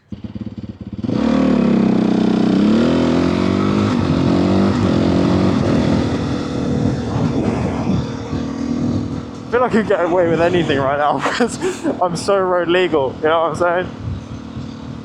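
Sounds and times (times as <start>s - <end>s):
motorcycle engine accelerating: 0.0s - 15.0s
rushing noise: 4.2s - 12.2s.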